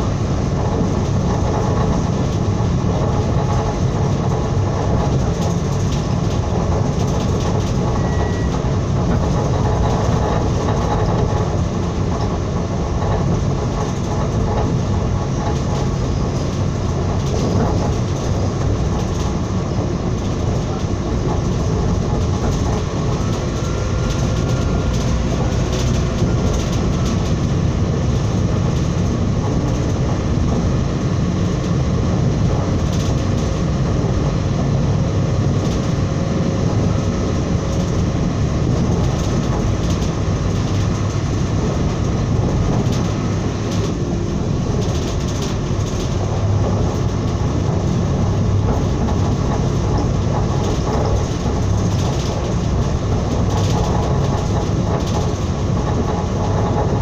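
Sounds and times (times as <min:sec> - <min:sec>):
rumble of wheels on rails: 0:00.0 - 0:57.0.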